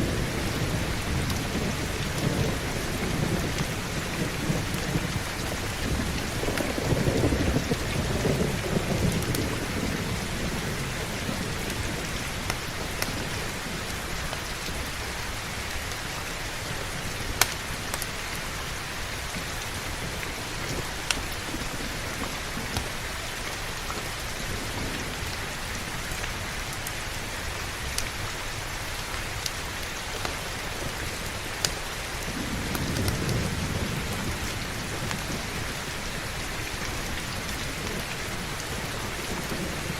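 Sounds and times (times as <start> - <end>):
rolling thunder: 0.0 - 14.2, 32.2 - 39.9
heavy rain: 0.0 - 39.9
wood fire crackling: 16.6 - 27.3, 27.9 - 39.9.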